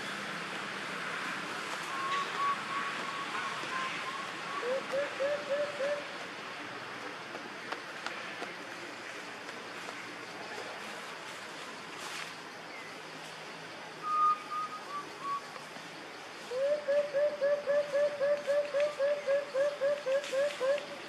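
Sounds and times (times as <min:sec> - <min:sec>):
steady background hiss: 0:00.0 - 0:21.0
bird whistled notes: 0:14.0 - 0:15.4.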